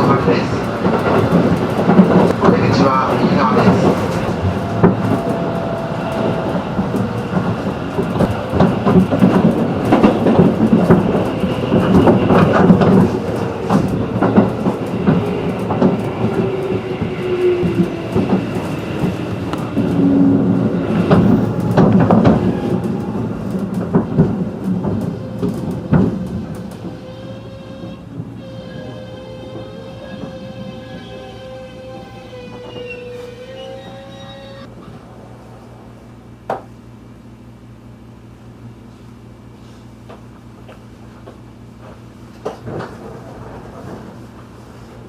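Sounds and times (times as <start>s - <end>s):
clacks over rail joints: 0.0s - 31.1s, 40.1s - 44.4s
train wheels rumbling on rail: 0.0s - 45.0s.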